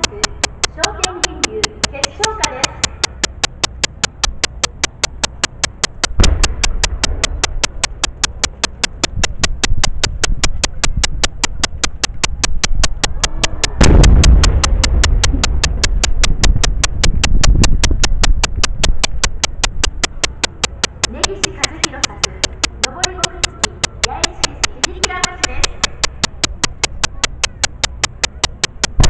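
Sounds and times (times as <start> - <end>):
steady ticking: 0.0 - 29.0
low rumbling echo: 9.1 - 20.0
firework booms: 13.8 - 15.9.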